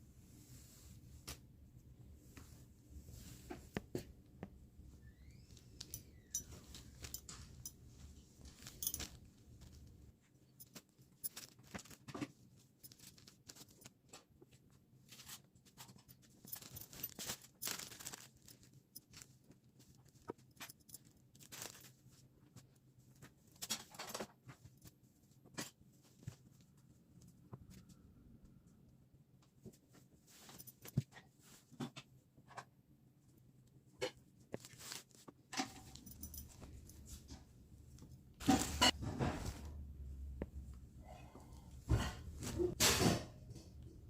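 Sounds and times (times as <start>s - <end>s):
packaging rustling: 16.5s - 19.2s.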